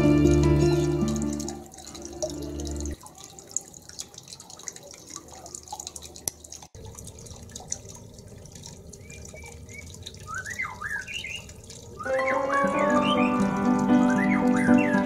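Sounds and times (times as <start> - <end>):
faint dripping and ticking: 0.0 - 15.0
small bird chirping: 9.0 - 15.0.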